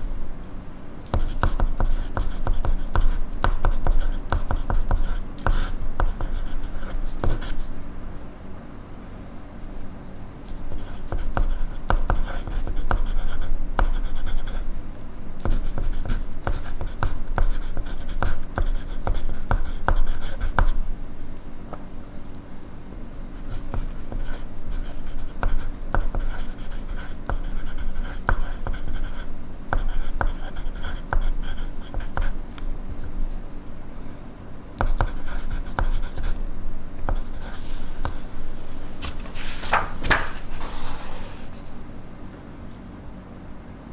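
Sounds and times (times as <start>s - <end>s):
pencil scratching on paper: 23.4s - 32.4s, 37.1s - 38.8s, 40.4s - 41.6s.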